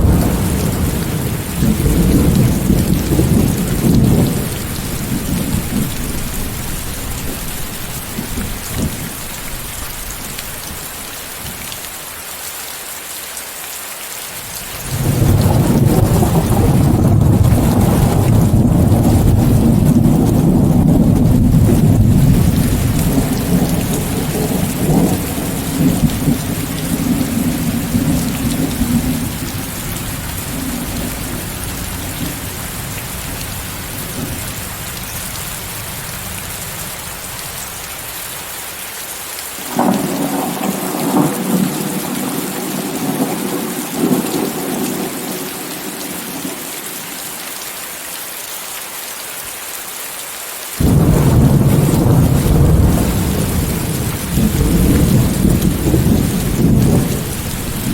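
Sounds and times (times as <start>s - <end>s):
thunder peals: 0.0s - 5.9s, 14.9s - 32.4s, 50.8s - 57.9s
steady rain: 0.0s - 57.9s.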